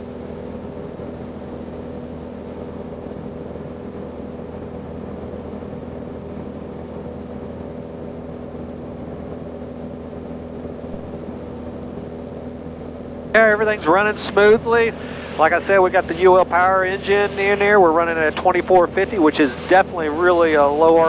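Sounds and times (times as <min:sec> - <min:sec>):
faint high hiss: 0:00.0 - 0:02.6, 0:10.8 - 0:21.0
aircraft engine and propeller droning: 0:10.8 - 0:21.0.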